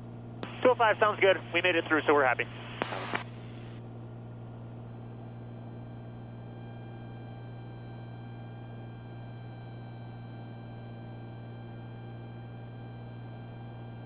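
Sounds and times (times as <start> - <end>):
faint hiss: 0.4 - 3.7
intercom low hum: 0.4 - 3.9.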